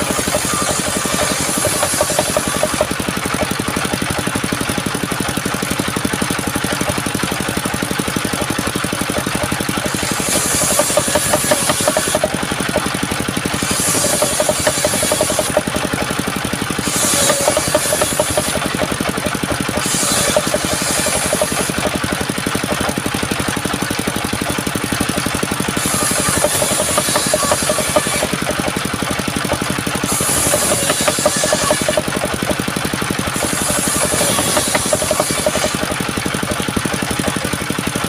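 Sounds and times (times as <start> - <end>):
high-pitched saw rush: 0.0 - 2.9, 9.8 - 12.4, 13.5 - 16.1, 16.7 - 21.9, 25.7 - 28.4, 30.0 - 32.1, 33.3 - 35.9
small engine driving saw: 0.0 - 38.0.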